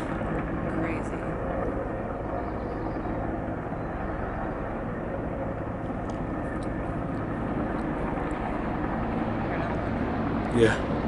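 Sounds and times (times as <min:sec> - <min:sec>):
helicopter flying overhead: 0:00.0 - 0:11.0.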